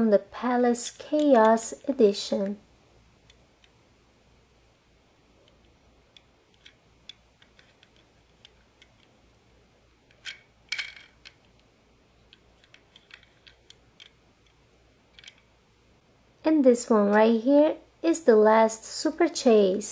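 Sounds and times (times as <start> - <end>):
toy cars clicking and tapping: 5.5 - 9.2, 12.3 - 15.5
toy cars clattering: 10.1 - 11.6, 12.3 - 15.5.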